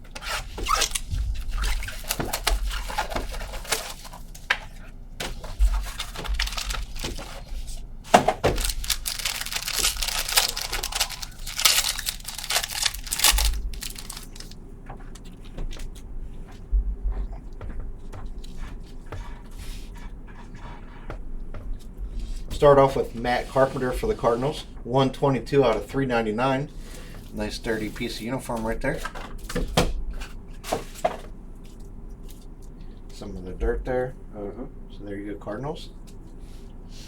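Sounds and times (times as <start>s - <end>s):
plastic wrapper crinkling and tearing: 0.6s - 4.5s, 5.4s - 14.6s
cardboard clicks and knocks: 8.1s - 15.8s.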